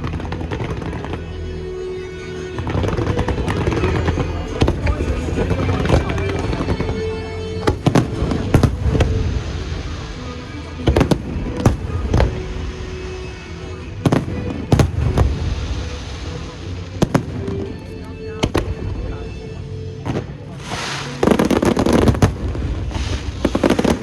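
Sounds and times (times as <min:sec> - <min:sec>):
loud background music: 0:00.0 - 0:24.0
fireworks bangs: 0:04.5 - 0:07.0, 0:07.6 - 0:13.4, 0:14.0 - 0:17.8, 0:20.1 - 0:24.0.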